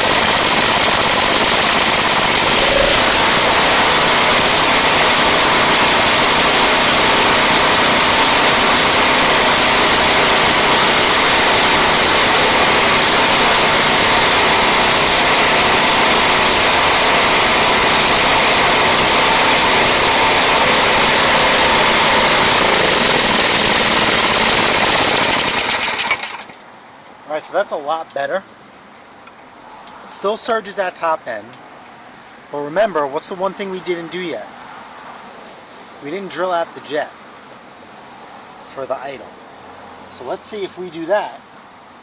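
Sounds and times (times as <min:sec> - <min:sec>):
snowblower engine running: 0:00.0 - 0:26.6.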